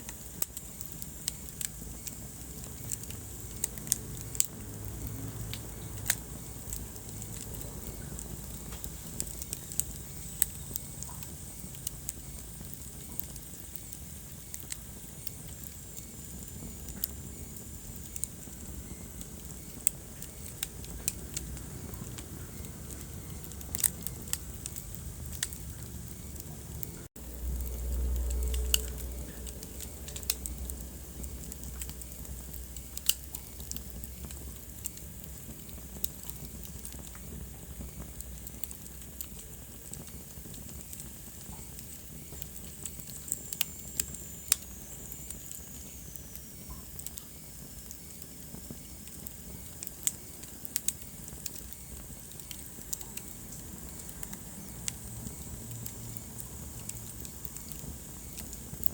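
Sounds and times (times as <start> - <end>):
wood fire crackling: 0.0 - 58.9
low rumble: 20.6 - 33.0.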